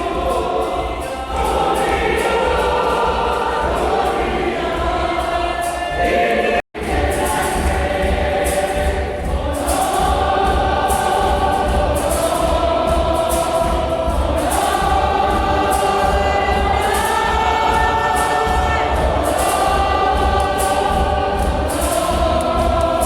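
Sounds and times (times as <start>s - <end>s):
choir singing long held notes: 0.0s - 23.0s
steady music beat: 0.0s - 23.0s.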